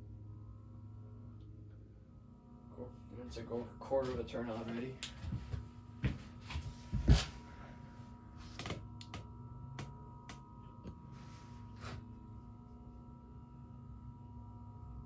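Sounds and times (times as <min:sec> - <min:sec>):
ceiling fan motor humming: 0:00.0 - 0:15.0.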